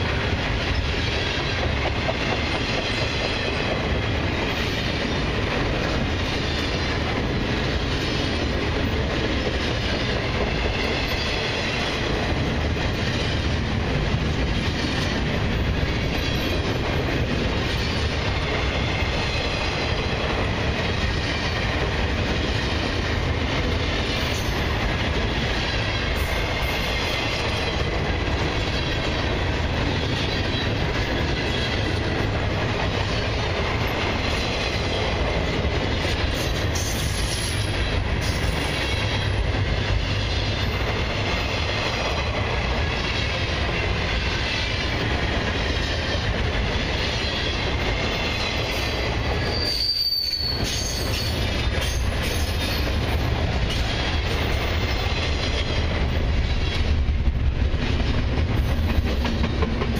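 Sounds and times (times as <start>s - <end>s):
steel wheels rumbling on rails: 0.0s - 59.9s
high wheel squeal: 49.4s - 53.0s.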